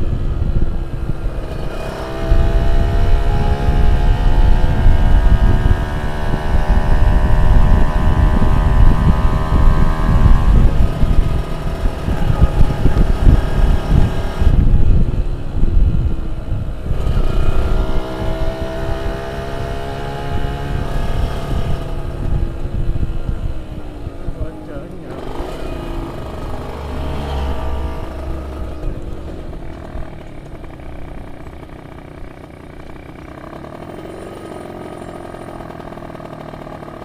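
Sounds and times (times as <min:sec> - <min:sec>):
two-stroke engine revving: 0:00.0 - 0:37.0.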